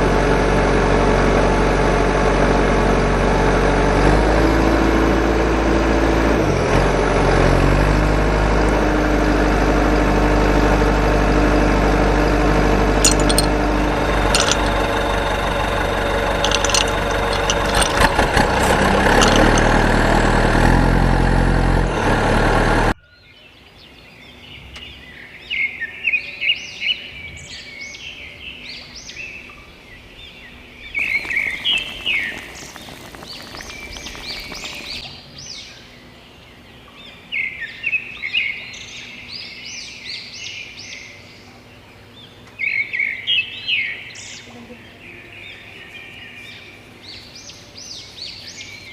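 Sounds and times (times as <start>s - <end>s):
birds chirping: 30.0s - 35.9s.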